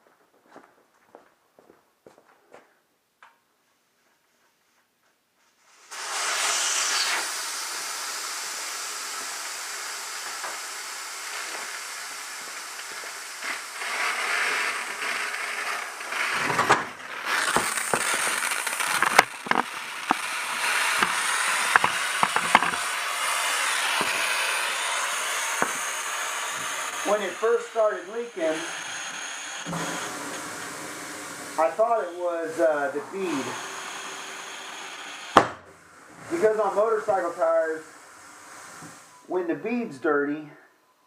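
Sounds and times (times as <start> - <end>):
tire changing machine air hiss: 5.6 - 39.6.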